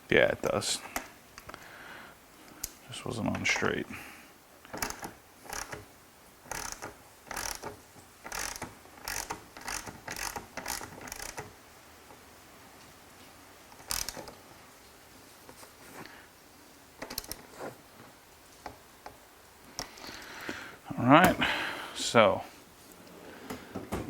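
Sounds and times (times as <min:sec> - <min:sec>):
ratchet wrench clicking: 0:04.8 - 0:05.8, 0:06.5 - 0:11.5, 0:13.8 - 0:14.3.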